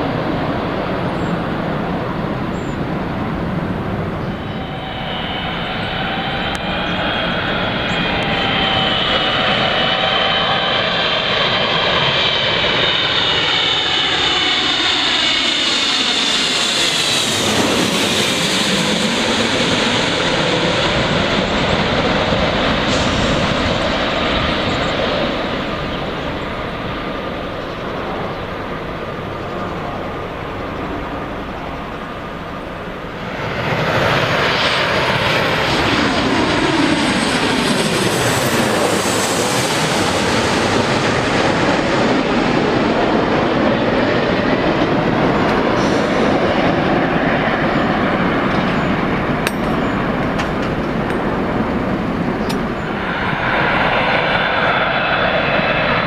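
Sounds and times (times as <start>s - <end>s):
jet airliner passing low: 0.0s - 56.0s.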